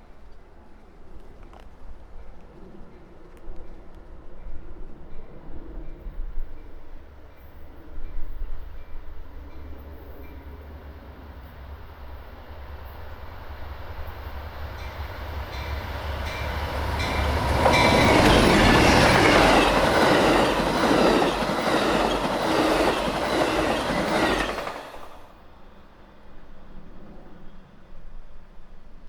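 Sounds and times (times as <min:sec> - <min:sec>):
train passing: 0:05.9 - 0:26.8
wheels clattering over rails: 0:15.6 - 0:25.3.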